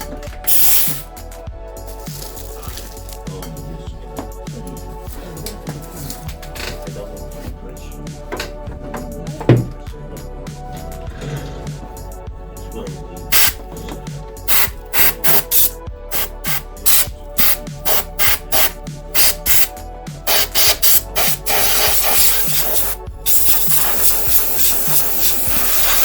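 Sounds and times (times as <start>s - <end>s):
background music with steady beat: 0.0s - 26.0s
air blow gun hissing: 0.4s - 1.1s, 13.3s - 13.7s, 14.5s - 26.0s.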